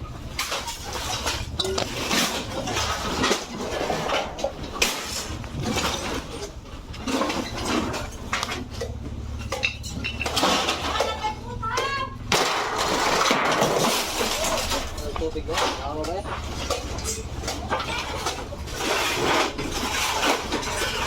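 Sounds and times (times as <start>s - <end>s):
hard objects clattering: 0.0s - 21.0s.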